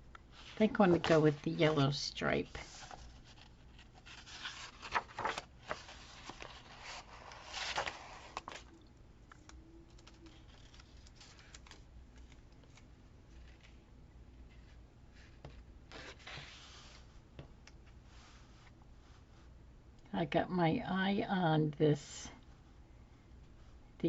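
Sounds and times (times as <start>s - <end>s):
paper rustling and scraping: 0.4s - 1.9s, 2.5s - 8.7s.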